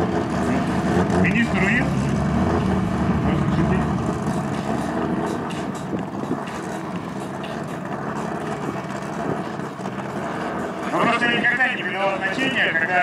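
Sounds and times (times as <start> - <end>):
car engines idling: 0.0 - 13.0.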